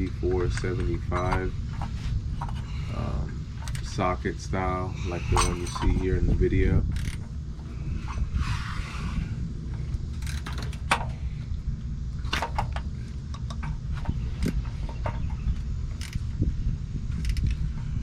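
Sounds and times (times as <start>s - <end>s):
steady low rumble: 0.0s - 18.0s
hand tools clinking: 0.4s - 1.5s, 5.1s - 6.2s.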